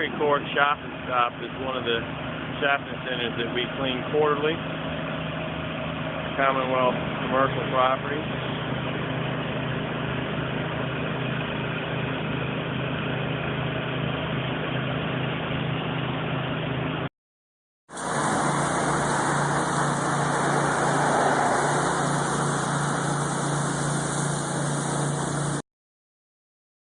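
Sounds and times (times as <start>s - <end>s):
pressure washer engine hum: 0.0s - 17.0s, 17.9s - 25.6s
spray hissing: 17.9s - 25.6s.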